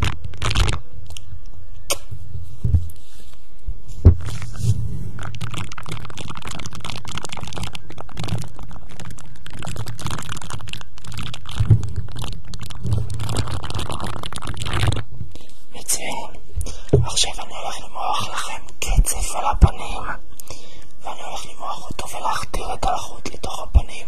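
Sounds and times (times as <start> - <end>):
close crackling and crinkling: 0.0 - 2.0, 2.6 - 24.0
soft low bumps on microphone: 2.6 - 2.9, 3.9 - 4.9.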